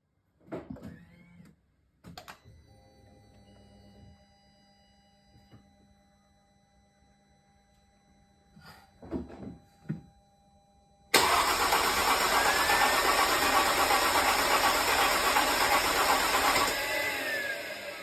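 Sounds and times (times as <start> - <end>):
car engine starting and running: 11.2 - 18.0.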